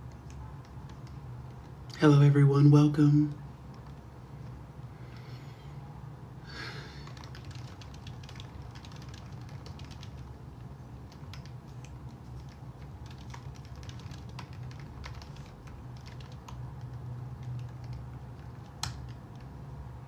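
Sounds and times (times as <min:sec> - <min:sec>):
steady low hum: 0:00.0 - 0:20.0
keyboard key clicks: 0:11.1 - 0:19.5.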